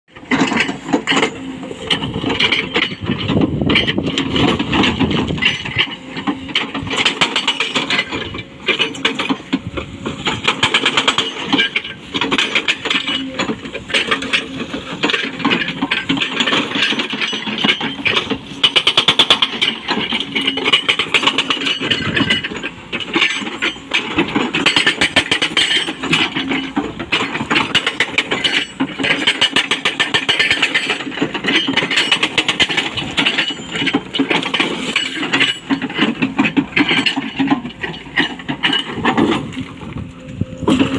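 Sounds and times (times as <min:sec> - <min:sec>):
excavator engine running: 0:00.1 - 0:40.9
hydraulic breaker hammering rock: 0:00.1 - 0:40.9.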